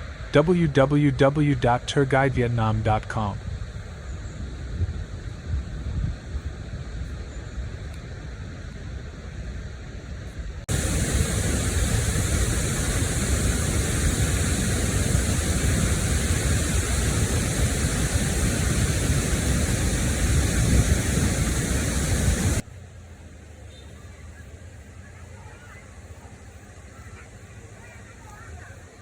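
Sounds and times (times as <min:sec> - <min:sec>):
waterfall rushing: 0:10.7 - 0:22.6.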